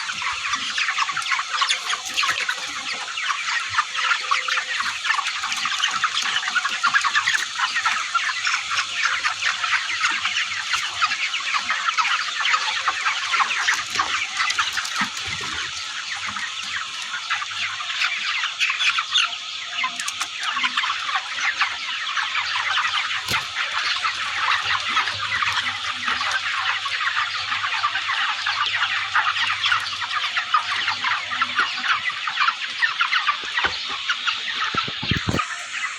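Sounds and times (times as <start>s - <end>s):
chickens clucking: 0.0s - 35.9s.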